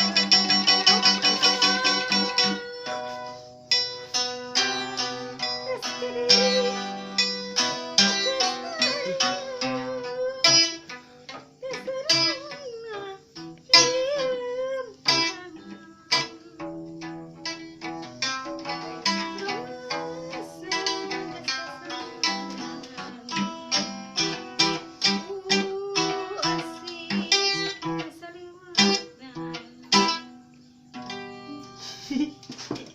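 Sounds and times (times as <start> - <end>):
plucked zither: 0.0 - 12.4, 15.0 - 28.0.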